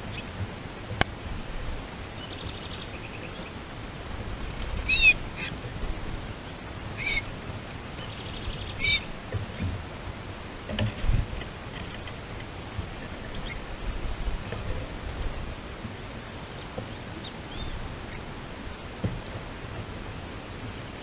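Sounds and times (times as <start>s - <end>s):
bird rapid trills: 4.3s - 5.6s, 6.9s - 7.3s, 8.0s - 9.2s
bird harsh calls: 4.8s - 5.6s, 6.9s - 7.3s, 8.1s - 9.2s.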